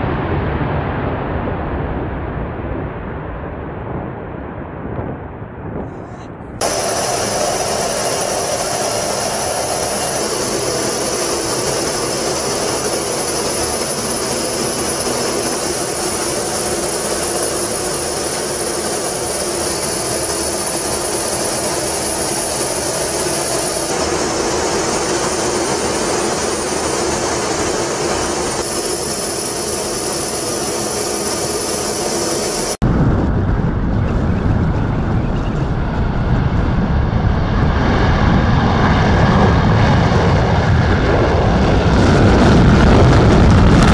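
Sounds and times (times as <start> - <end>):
jet engines rushing and whining: 0.0 - 43.9.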